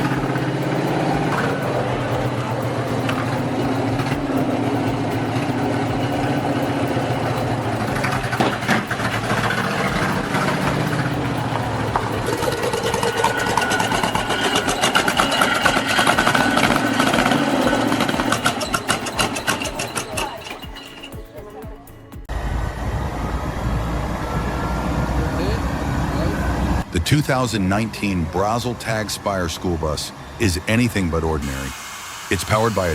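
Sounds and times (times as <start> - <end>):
car engine running deep: 0.0 - 19.7.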